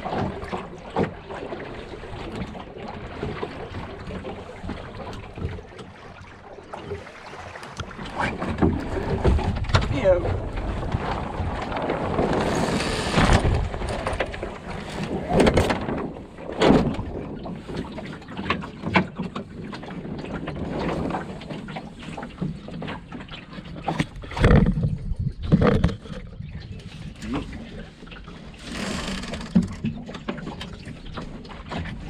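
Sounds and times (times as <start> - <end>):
water splashing against hull: 0.0 - 32.0
wind buffeting microphone: 7.8 - 22.7, 23.8 - 28.6.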